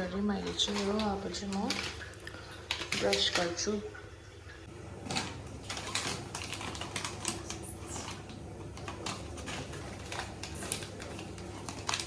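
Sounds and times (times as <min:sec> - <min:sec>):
toothbrush scrubbing teeth: 0:05.6 - 0:12.0.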